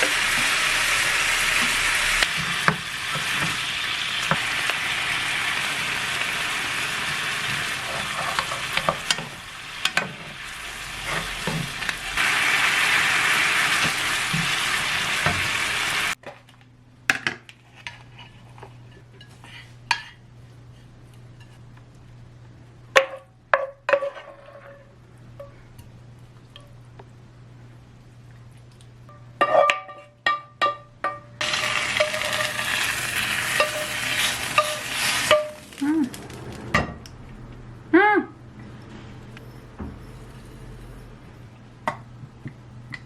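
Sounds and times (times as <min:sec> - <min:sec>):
food sizzling in a pan: 0:00.0 - 0:16.2, 0:31.4 - 0:36.3
low steady hum: 0:16.3 - 0:43.0.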